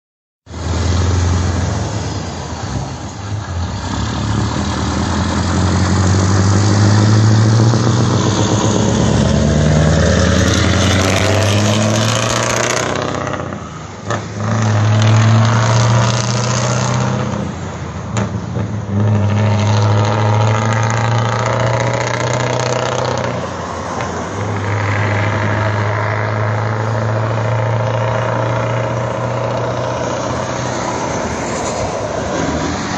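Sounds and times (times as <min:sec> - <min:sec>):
truck diesel engine accelerating: 0:00.5 - 0:32.9.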